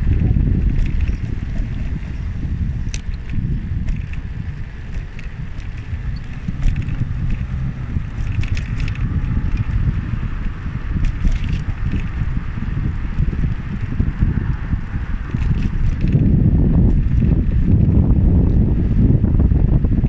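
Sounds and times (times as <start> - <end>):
light clicks and rattles: 0.0 - 2.0, 2.8 - 10.0, 10.9 - 12.3, 12.9 - 17.8
wind rumbling on microphone: 0.0 - 20.0.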